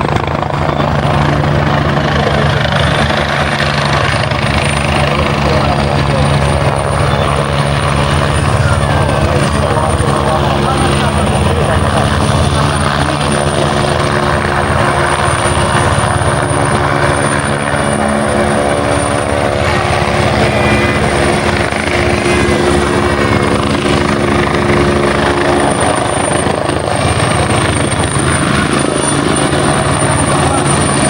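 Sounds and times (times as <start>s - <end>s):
helicopter rotor chop: 0.0s - 31.0s
high whine: 15.6s - 26.6s.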